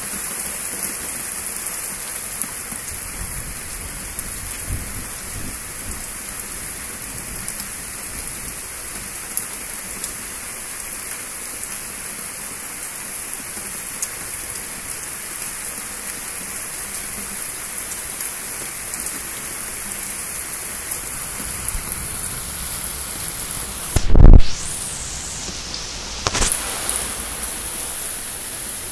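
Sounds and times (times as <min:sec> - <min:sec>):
heavy rain hissing: 0:00.0 - 0:28.9
sharp raindrop ticks: 0:22.8 - 0:28.9.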